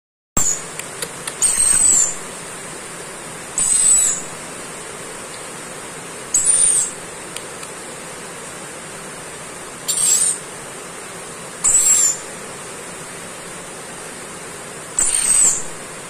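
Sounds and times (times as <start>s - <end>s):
high-pitched whine: 0.4s - 0.8s, 1.4s - 4.5s, 6.3s - 7.1s, 11.6s - 12.6s
parrot screeching: 1.4s - 2.2s, 3.6s - 4.3s, 6.3s - 7.0s, 9.9s - 10.4s, 11.6s - 12.3s, 15.0s - 15.7s.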